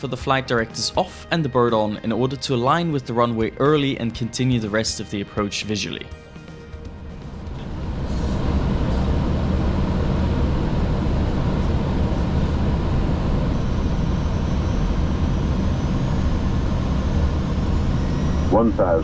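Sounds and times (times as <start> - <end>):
airflow and engine rush: 6.3 - 19.0.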